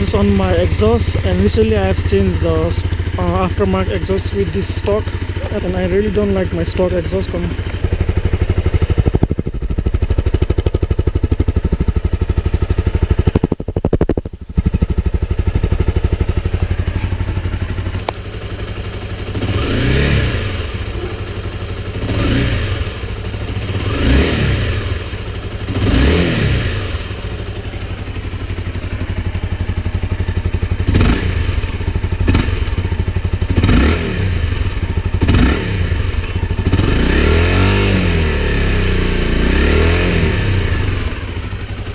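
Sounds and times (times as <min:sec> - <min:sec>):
motorcycle throttle blips: 0:00.0 - 0:37.2
motorcycle engine idling: 0:00.0 - 0:41.9.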